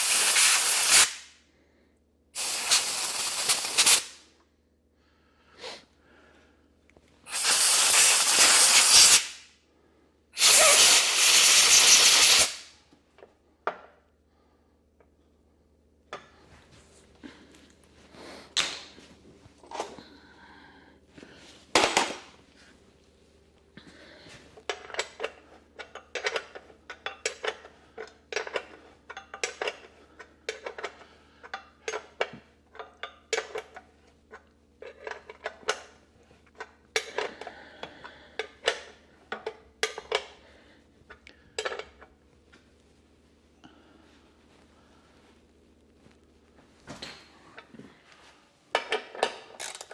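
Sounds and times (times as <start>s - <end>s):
metal parts and tools clinking: 48.8s - 49.9s.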